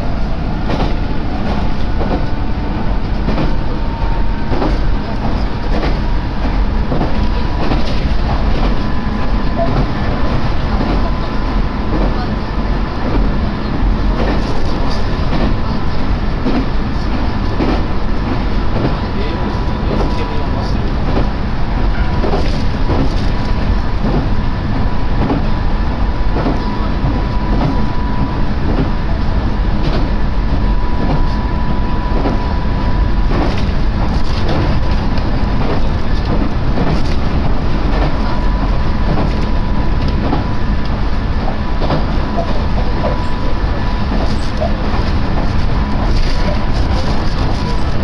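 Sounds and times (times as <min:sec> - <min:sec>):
steady high whine: 0:00.0 - 0:48.0
train wheels rumbling on rails: 0:00.0 - 0:48.0.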